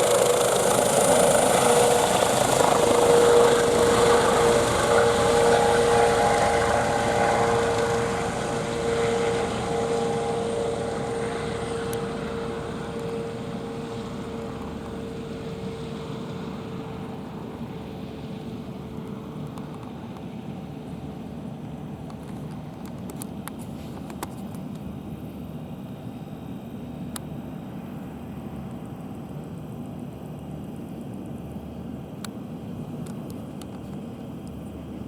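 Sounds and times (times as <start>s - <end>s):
helicopter rotor noise: 0.0s - 23.4s.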